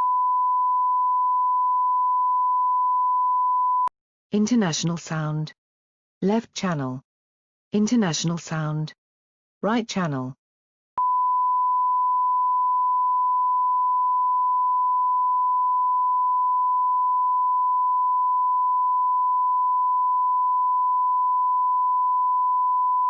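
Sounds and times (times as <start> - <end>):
sine test tone: 0.0 - 3.9, 11.0 - 23.0.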